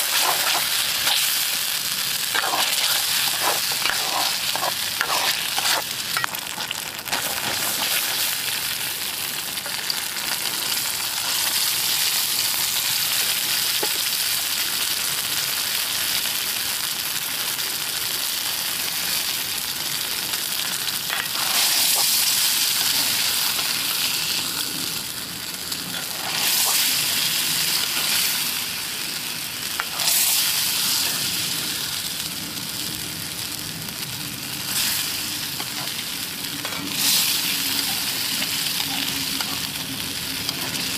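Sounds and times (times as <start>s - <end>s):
food sizzling in a wok: 0.0s - 40.9s.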